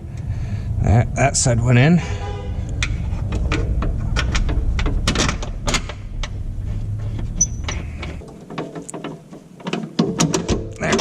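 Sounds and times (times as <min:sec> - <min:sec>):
low rumble: 0:00.0 - 0:08.2
metal suspension parts knocking: 0:02.6 - 0:11.0.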